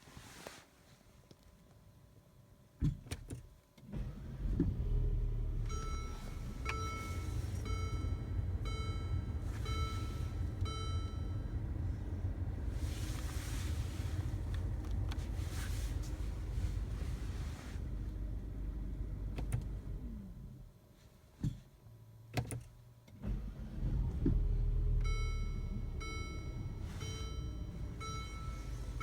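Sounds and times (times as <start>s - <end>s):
car engine starting and idling: 3.8s - 20.8s, 22.3s - 29.0s
car warning chime: 5.4s - 13.0s, 24.9s - 29.0s.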